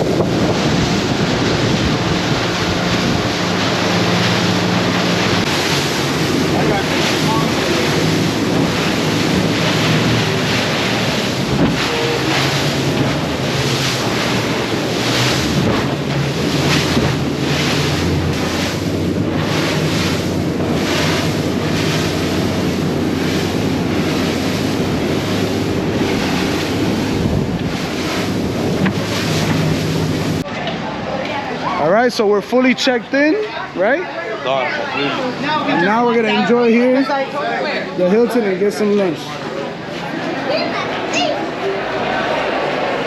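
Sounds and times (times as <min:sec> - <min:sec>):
wind buffeting microphone: 0:00.0 - 0:30.4
outboard engine drone: 0:00.0 - 0:43.0
water rushing past hull: 0:00.0 - 0:43.0.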